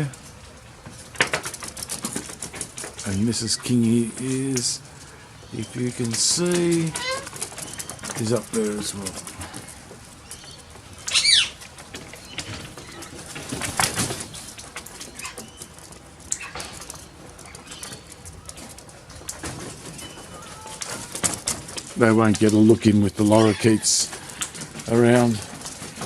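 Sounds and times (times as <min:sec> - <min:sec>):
small clicks and scuffles: 0:00.1 - 0:22.8
wing flaps: 0:05.6 - 0:22.8
parrot shrill call: 0:11.1 - 0:11.5.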